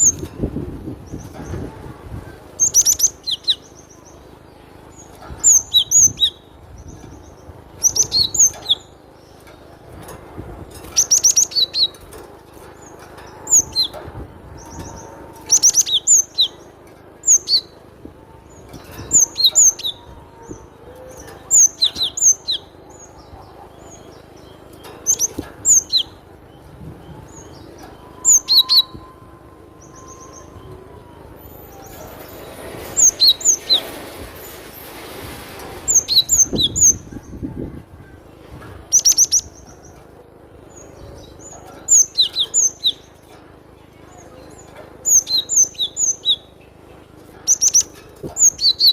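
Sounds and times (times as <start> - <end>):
bird singing high clear notes: 12.9 - 33.8.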